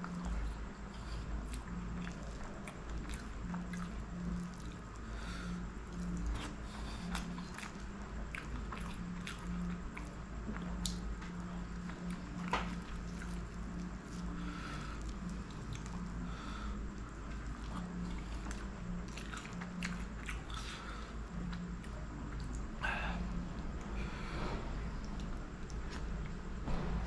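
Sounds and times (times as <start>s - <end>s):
wet chewing and lip smacks: 5.9s - 14.4s, 15.0s - 16.2s, 16.9s - 22.7s, 25.0s - 26.4s.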